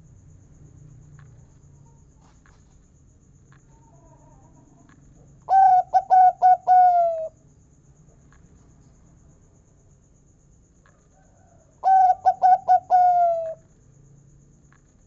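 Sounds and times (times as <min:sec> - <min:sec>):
dove cooing: 0:05.5 - 0:07.3, 0:11.8 - 0:13.6.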